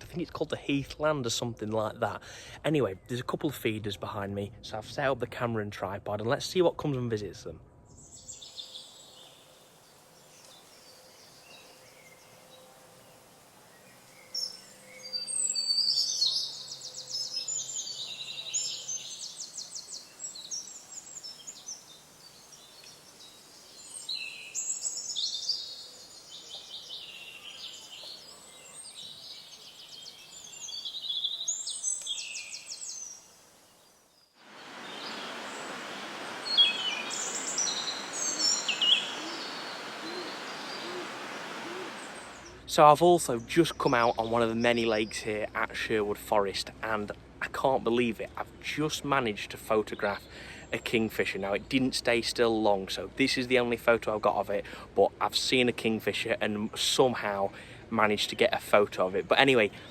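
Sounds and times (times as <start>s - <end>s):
small birds singing and chirping: 7.9s - 46.0s
steady rushing noise: 34.4s - 42.6s.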